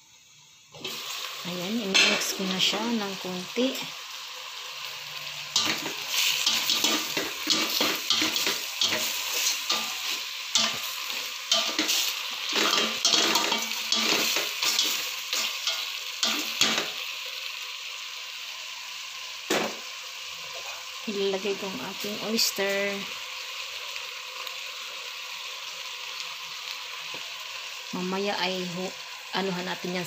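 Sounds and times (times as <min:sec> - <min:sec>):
meat sizzling in a pot: 0:00.0 - 0:30.0.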